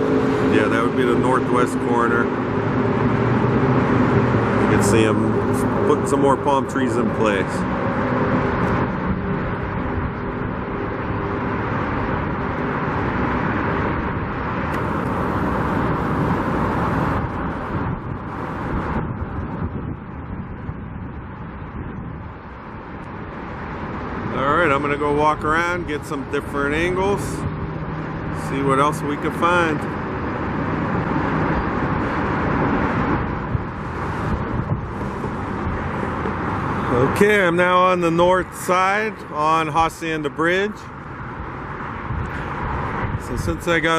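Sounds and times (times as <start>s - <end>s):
road traffic noise: 0.0s - 43.9s
wind rumbling on microphone: 0.0s - 43.9s.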